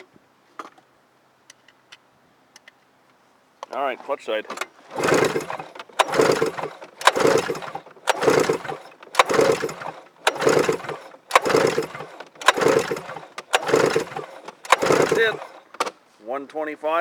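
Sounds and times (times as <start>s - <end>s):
snowmobile engine cranking: 3.7s - 16.0s.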